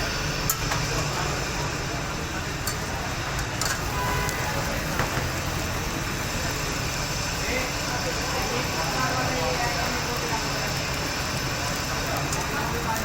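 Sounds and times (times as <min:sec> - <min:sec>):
traffic rumble: 0:00.0 - 0:13.0
utensils clinking: 0:02.6 - 0:03.9.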